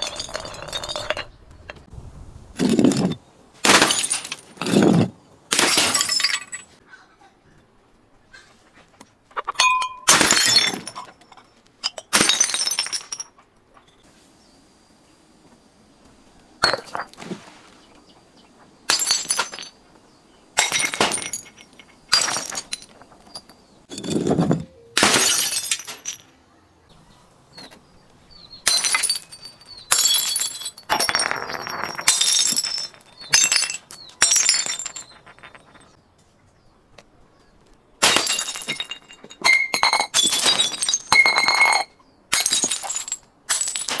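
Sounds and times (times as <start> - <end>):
glass bottles breaking: 0.0 - 1.3, 2.6 - 6.8, 9.5 - 13.4, 18.9 - 19.8, 20.6 - 26.3, 28.6 - 36.0, 38.0 - 44.0.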